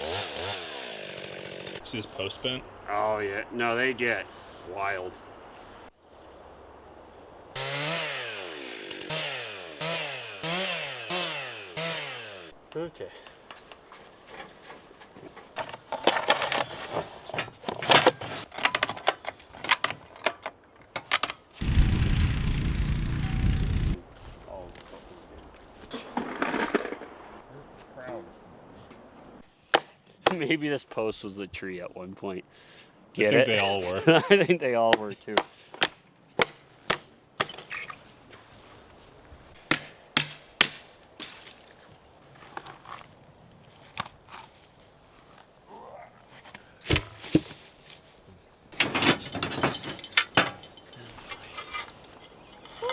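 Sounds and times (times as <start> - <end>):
steady low rumbling: 21.6 - 24.2
hammer blows on metal: 29.4 - 31.0, 34.9 - 38.2, 39.6 - 41.4.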